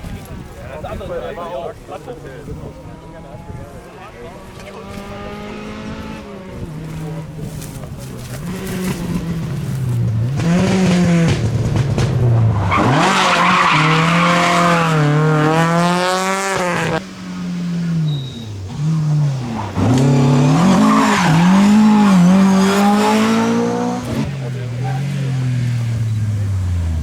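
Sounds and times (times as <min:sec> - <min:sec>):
rally car engine revving: 0:04.3 - 0:27.0
tyres squealing: 0:17.8 - 0:23.2.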